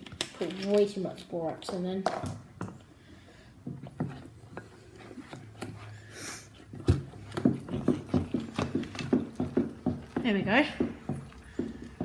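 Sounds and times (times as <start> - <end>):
slime squelching by hand: 2.8 - 12.0.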